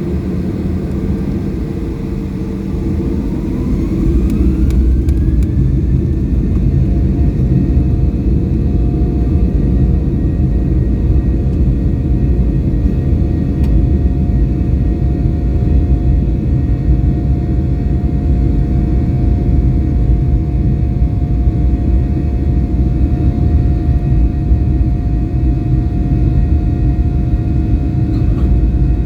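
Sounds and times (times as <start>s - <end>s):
jet engines spooling up: 0.1s - 8.6s.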